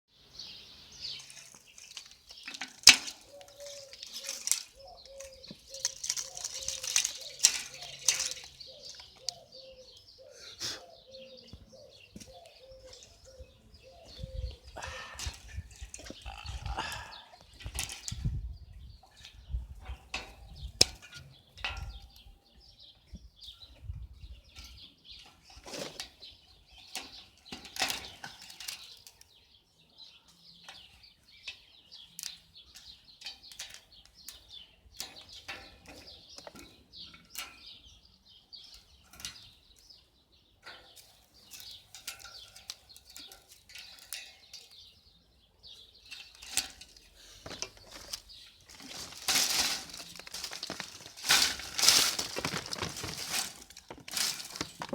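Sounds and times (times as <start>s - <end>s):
irregular rustling: 1.1s - 9.5s, 46.0s - 54.9s.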